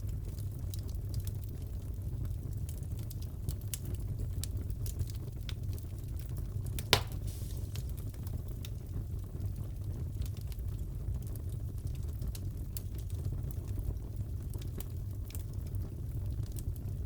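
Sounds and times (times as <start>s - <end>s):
wood fire crackling: 0.0s - 17.0s
loud pop from fire: 6.8s - 8.5s.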